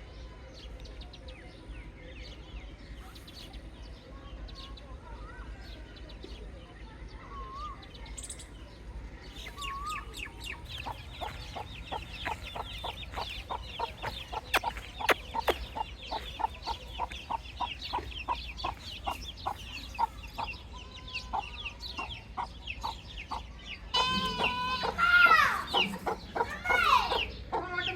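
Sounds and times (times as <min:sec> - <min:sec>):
baby chicks peeping: 0:08.8 - 0:27.9.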